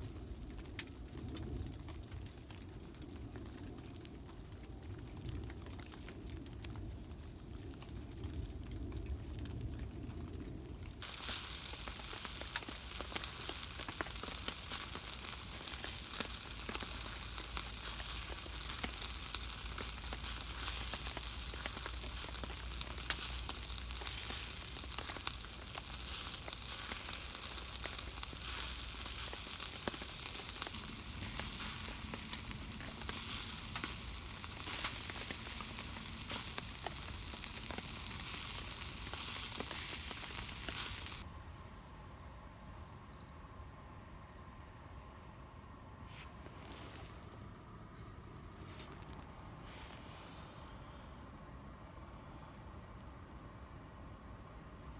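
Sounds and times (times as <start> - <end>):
food sizzling: 11.0 - 41.2.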